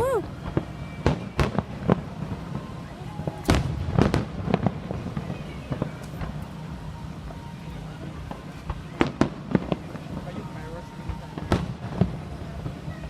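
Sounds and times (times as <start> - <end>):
fireworks bangs and pops: 0.0 - 13.0.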